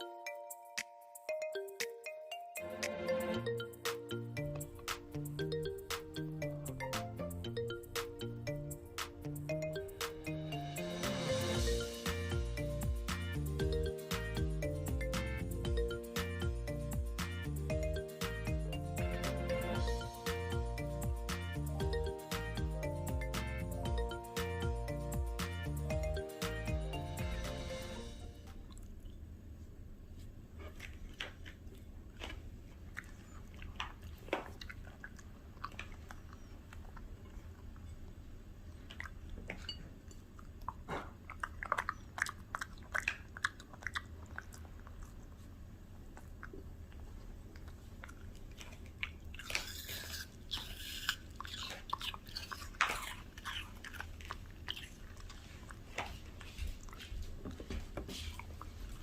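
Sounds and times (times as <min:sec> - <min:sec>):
dog chewing crunchy food: 0:30.6 - 0:59.0.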